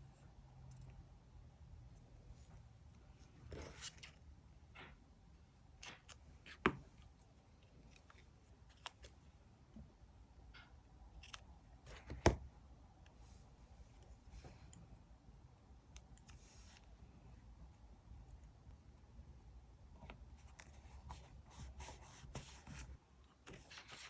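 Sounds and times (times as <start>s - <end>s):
paper rustling: 20.4s - 24.0s.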